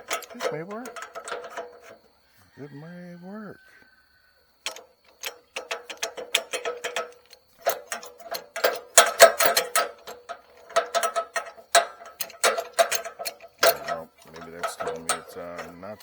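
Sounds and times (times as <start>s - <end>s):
metal ratchet clicking: 0.0s - 2.0s, 4.6s - 16.0s.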